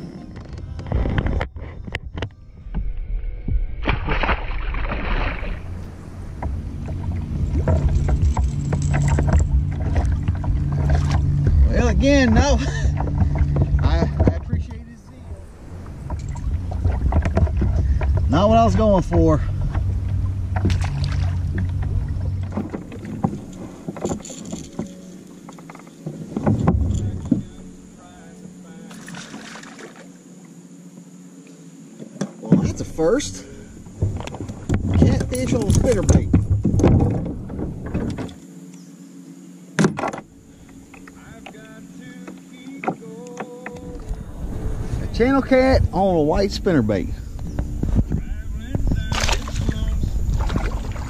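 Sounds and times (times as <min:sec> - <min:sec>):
wind on microphone: 0:00.0 - 0:24.1, 0:33.5 - 0:38.4, 0:43.7 - 0:51.0
low rumble: 0:00.0 - 0:25.0, 0:43.8 - 0:51.0
water lapping against hull: 0:00.0 - 0:30.6, 0:31.9 - 0:39.0, 0:39.9 - 0:51.0
clicks and knocks of gear: 0:07.6 - 0:11.3, 0:20.5 - 0:27.5.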